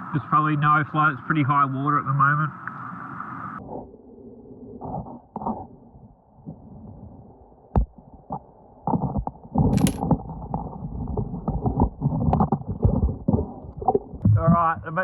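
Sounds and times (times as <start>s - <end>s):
underwater stones and gravel shifting: 9.7s - 14.1s
sharp underwater click: 9.8s - 10.0s.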